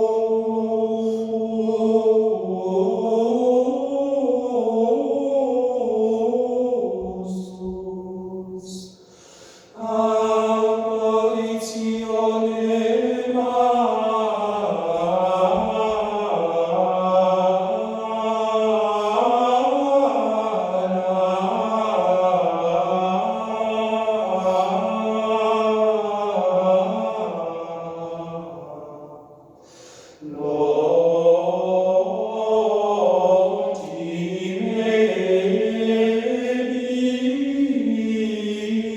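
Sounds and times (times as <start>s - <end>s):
choir singing over loudspeakers: 0.0s - 8.9s, 9.8s - 29.3s, 30.2s - 38.9s.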